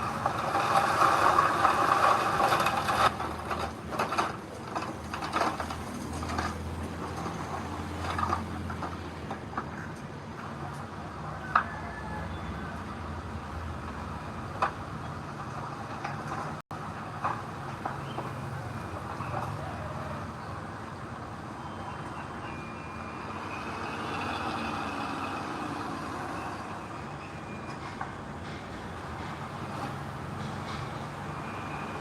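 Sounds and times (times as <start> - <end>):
heavy diesel machinery running: 0.0 - 9.8, 12.4 - 32.0.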